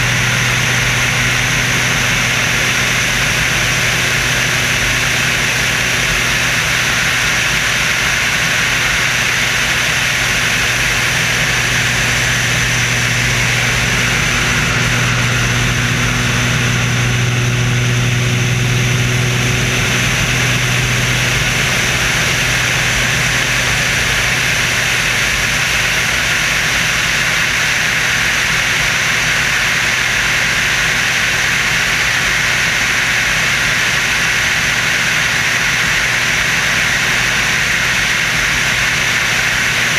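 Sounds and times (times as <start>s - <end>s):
low hum: 0.0s - 29.3s
aircraft engine drone: 0.0s - 39.9s.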